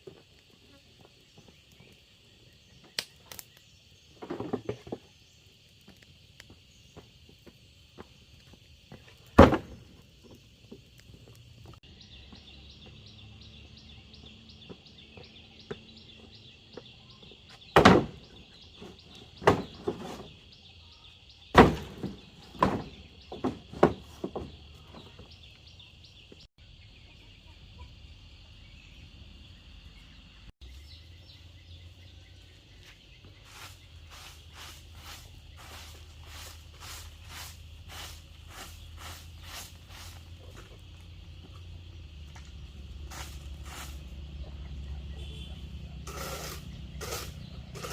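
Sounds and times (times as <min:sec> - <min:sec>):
loud thuds: 0:17.7 - 0:18.4.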